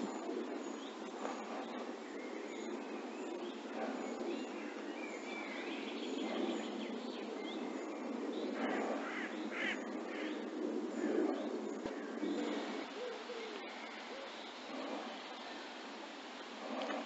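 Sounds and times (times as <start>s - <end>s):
birds calling: 0.0s - 17.0s
steady hiss: 0.0s - 17.0s.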